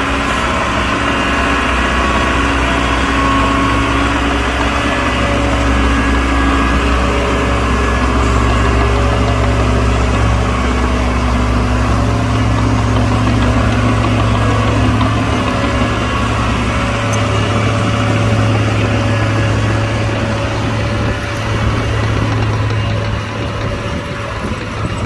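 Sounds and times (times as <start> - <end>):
diesel engine humming: 0.0 - 25.0.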